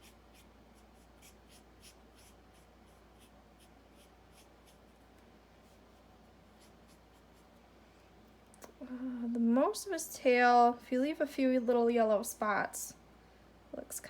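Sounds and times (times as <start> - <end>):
marker scratching on paper: 0.0 - 5.0, 6.6 - 7.4.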